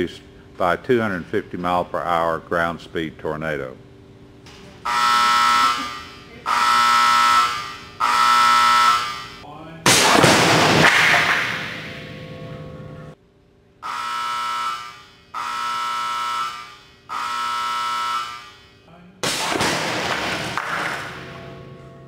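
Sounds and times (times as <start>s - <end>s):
electric warning buzzer: 4.8s - 9.4s, 13.8s - 18.9s.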